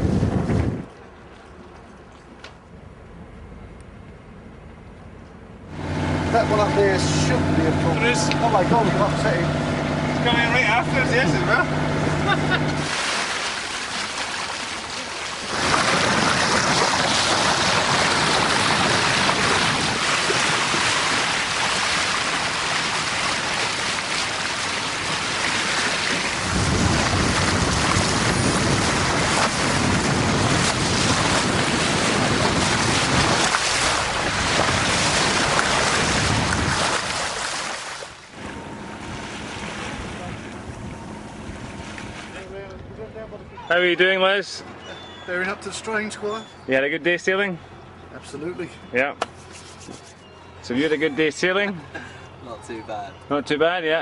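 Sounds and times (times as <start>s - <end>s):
wind blowing across microphone: 0.0s - 1.0s, 26.1s - 37.2s
water rushing past hull: 5.7s - 42.5s.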